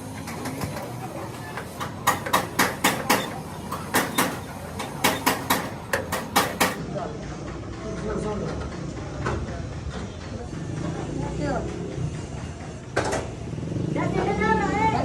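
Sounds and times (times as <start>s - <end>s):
hammer striking metal: 1.8s - 6.8s.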